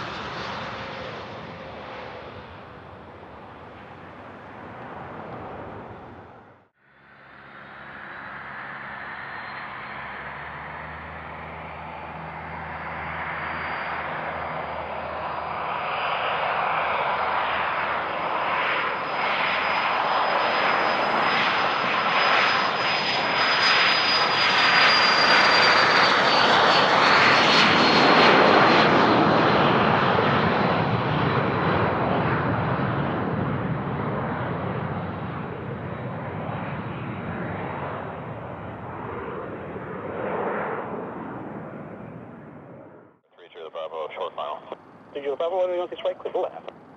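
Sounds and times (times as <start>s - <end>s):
thin high engine whine: 0.0s - 30.4s, 31.0s - 46.9s
jet passing by: 0.0s - 46.9s.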